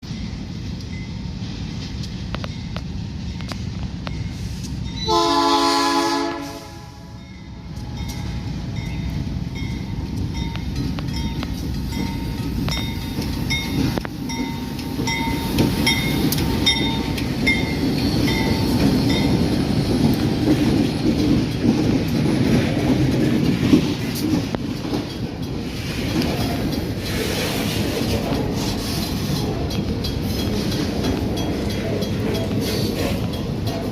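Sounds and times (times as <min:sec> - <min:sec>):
train rumbling: 0:00.0 - 0:33.9
train horn: 0:05.0 - 0:07.3.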